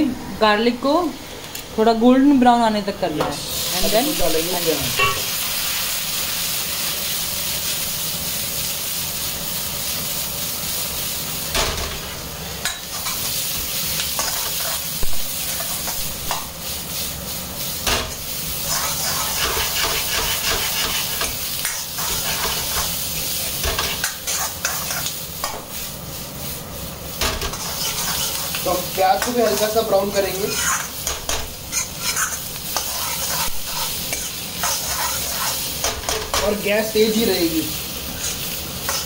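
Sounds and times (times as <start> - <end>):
onions sizzling in hot oil: 0.0 - 39.0
wok knocking and clattering: 4.9 - 5.3, 11.5 - 13.2, 19.2 - 23.0, 23.6 - 25.7, 27.2 - 28.6, 30.7 - 32.2, 32.8 - 36.6.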